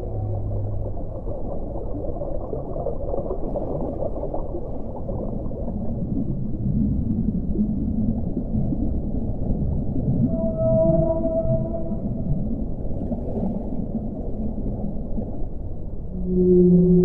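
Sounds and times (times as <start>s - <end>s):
low swelling sound: 0.0s - 2.4s, 10.2s - 12.6s
muffled underwater water noise: 0.0s - 17.0s.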